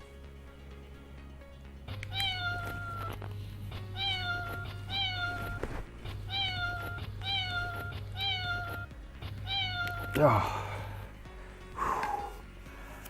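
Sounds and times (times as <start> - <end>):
meow-like alarm call: 2.1 - 3.1, 4.0 - 5.6, 6.3 - 10.2.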